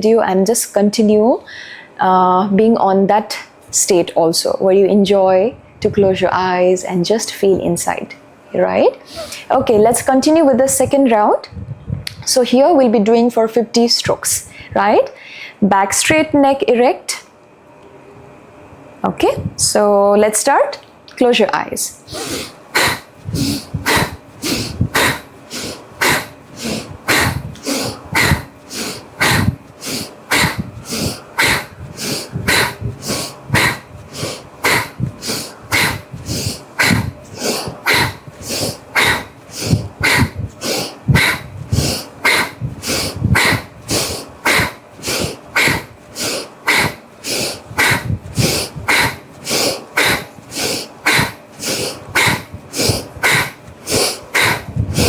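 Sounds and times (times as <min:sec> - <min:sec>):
forceful hissing nose breaths: 0:22.0 - 0:55.0.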